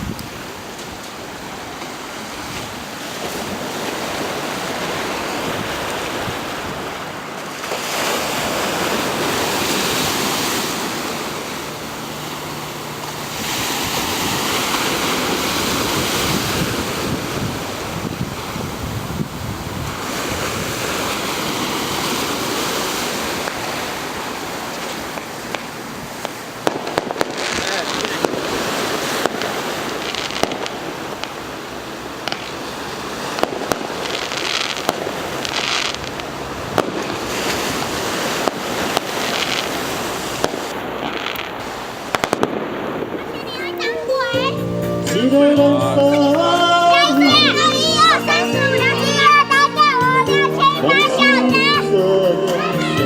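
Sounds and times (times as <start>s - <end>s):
wind on microphone: 0.0s - 1.4s, 13.1s - 25.4s
waves breaking: 0.0s - 53.0s.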